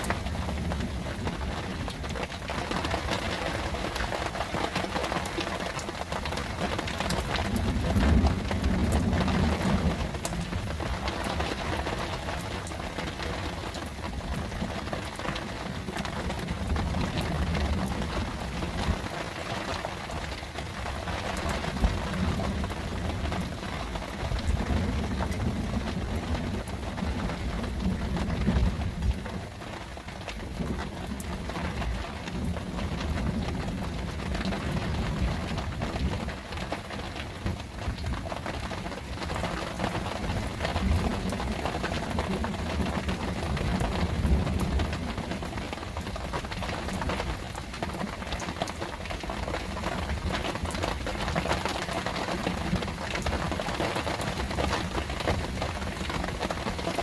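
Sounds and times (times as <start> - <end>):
distant thunder rumbles: 0.0 - 14.8, 30.4 - 48.4
heavy rain falling: 0.0 - 57.0.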